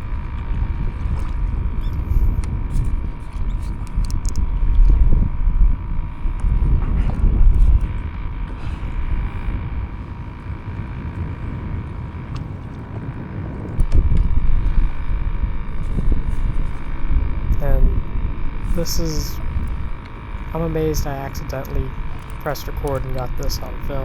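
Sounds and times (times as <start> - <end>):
water sloshing around kayak: 0.0 - 18.8
faint steady whine: 0.0 - 24.0
wind buffeting microphone: 0.0 - 24.0.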